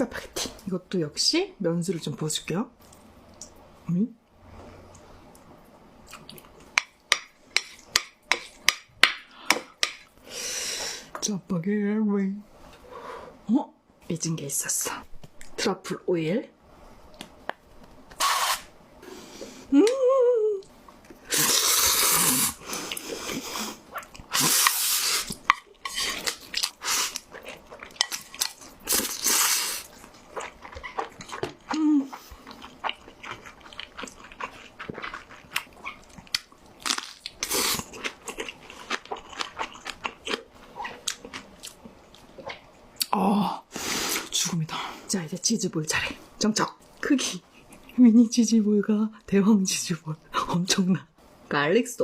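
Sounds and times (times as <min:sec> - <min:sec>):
wet chewing: 0:25.2 - 0:43.1.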